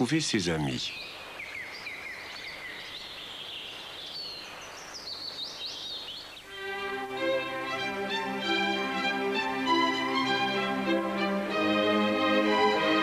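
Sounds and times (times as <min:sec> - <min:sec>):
birds chirping: 0:00.0 - 0:11.6
steady outdoor hiss: 0:00.0 - 0:13.0
string orchestra playing: 0:06.5 - 0:13.0.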